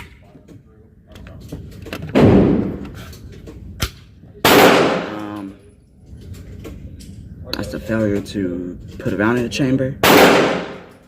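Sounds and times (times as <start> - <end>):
gunshots echoing: 2.1 - 2.9, 4.4 - 5.4, 10.0 - 11.0.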